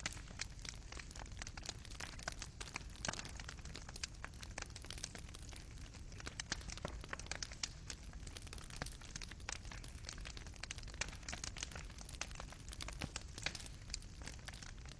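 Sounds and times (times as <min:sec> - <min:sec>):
fire crackling and popping: 0:00.0 - 0:14.9.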